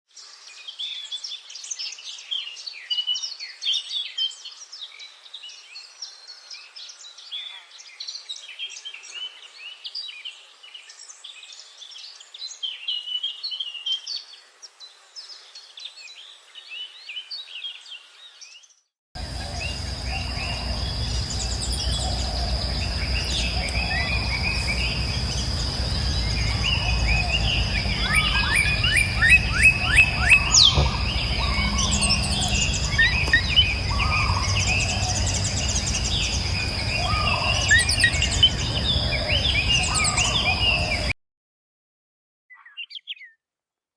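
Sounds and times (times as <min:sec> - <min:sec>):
small birds chirping: 0:00.1 - 0:41.1, 0:42.5 - 0:43.4
low rumble: 0:19.2 - 0:37.1
high-pitched whine: 0:19.2 - 0:38.6.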